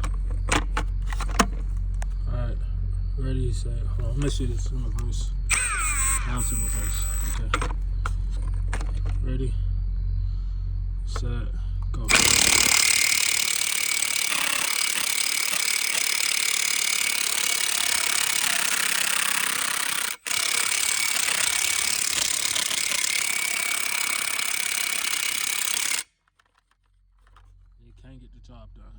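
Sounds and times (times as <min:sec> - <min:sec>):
impact wrench hammering: 0:12.1 - 0:26.5.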